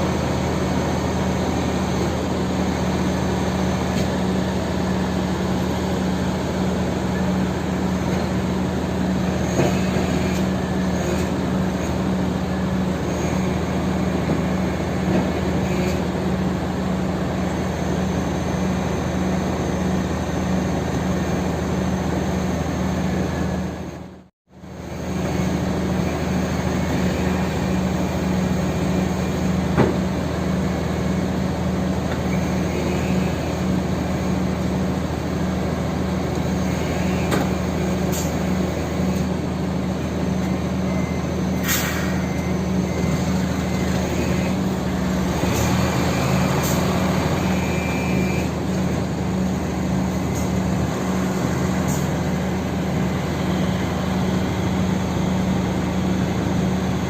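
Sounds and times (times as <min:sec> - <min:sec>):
truck diesel engine running: 0:00.0 - 0:57.0
short hisses: 0:41.6 - 0:42.2.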